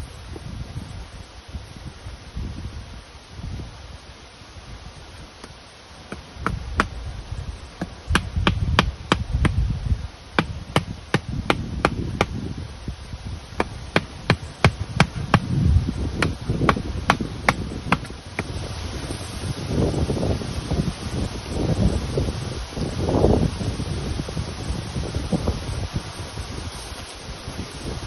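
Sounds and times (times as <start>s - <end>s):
dull low thumps: 6.1s - 12.6s
sharp knocks: 10.4s - 12.4s.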